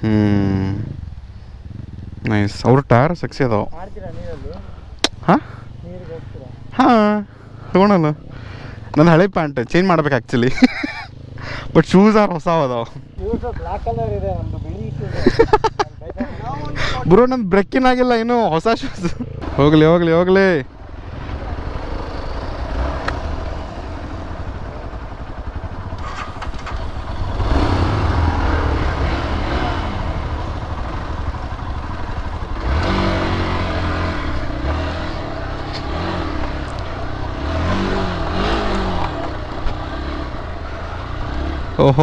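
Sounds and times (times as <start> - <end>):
off-road motorcycle engine revving: 0.0 - 17.2, 17.8 - 42.0
motorcycle clatter: 21.5 - 42.0.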